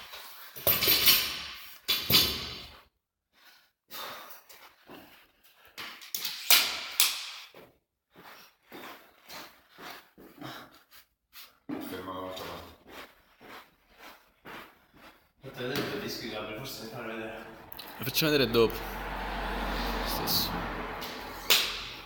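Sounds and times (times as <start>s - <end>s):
person breathing hard: 3.4s - 5.8s.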